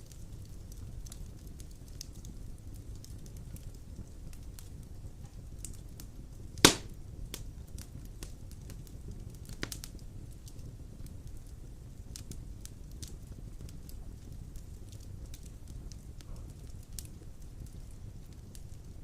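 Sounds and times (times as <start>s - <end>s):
fire crackling: 0.0s - 19.0s
low rumble of fire: 0.0s - 19.0s
loud fire pop: 6.6s - 7.0s.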